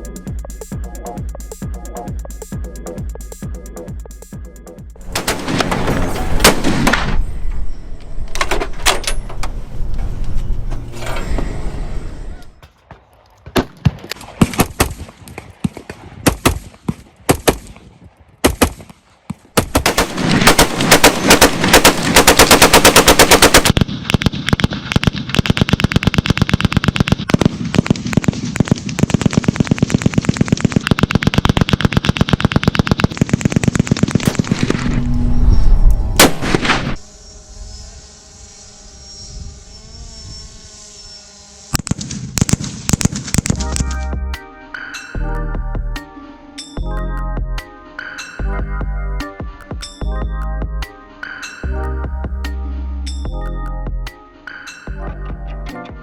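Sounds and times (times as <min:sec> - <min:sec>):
rapid gunfire: 0:14.4 - 0:15.1, 0:19.6 - 0:34.6.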